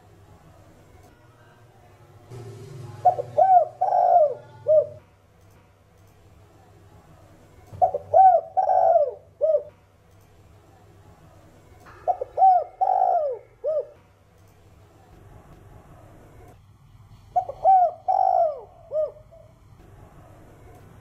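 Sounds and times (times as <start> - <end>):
dove cooing: 3.0 - 5.0, 7.8 - 9.7, 12.1 - 14.0, 17.4 - 19.6.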